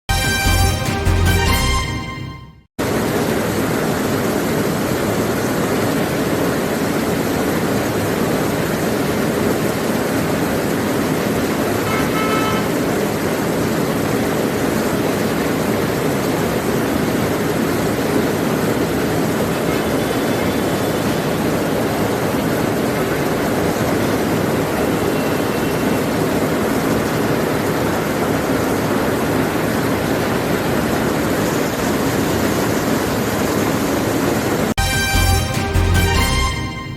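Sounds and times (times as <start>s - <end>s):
vehicle horn toots: 0.1s - 2.6s, 11.8s - 12.8s, 34.8s - 36.9s
street traffic: 6.5s - 36.9s.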